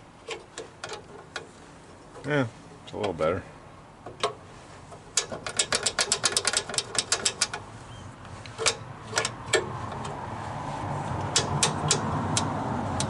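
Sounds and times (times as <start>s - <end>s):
metallic clicks: 5.1s - 7.6s, 8.4s - 10.2s, 11.2s - 13.0s
ratchet wrench clicking: 5.2s - 7.6s, 11.2s - 13.0s
steady rushing noise: 7.6s - 13.0s.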